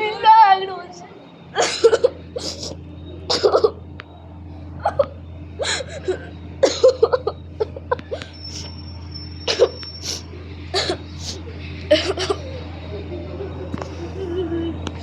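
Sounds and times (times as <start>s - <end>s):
sniffles: 2.4s - 3.7s, 9.5s - 12.5s
woman crying: 11.9s - 12.6s, 14.0s - 14.8s.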